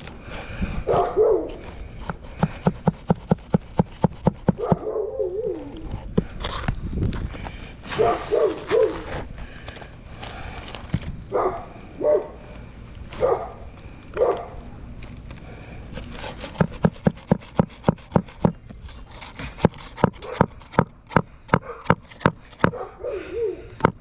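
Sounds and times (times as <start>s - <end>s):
dog barking: 0.9s - 1.6s, 4.6s - 5.3s, 8.0s - 9.1s, 11.3s - 12.4s, 13.2s - 13.6s, 14.2s - 14.6s, 22.6s - 23.6s
hammer driving nail: 2.0s - 4.8s, 16.2s - 18.6s, 19.2s - 22.7s.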